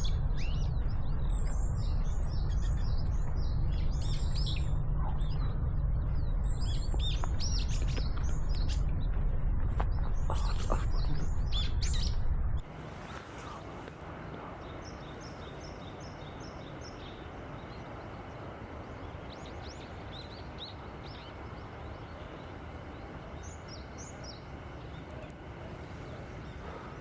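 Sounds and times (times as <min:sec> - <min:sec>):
songbirds calling: 0:00.0 - 0:05.5, 0:06.2 - 0:09.0, 0:09.9 - 0:27.0
outdoor hiss and low rumble: 0:00.0 - 0:27.0.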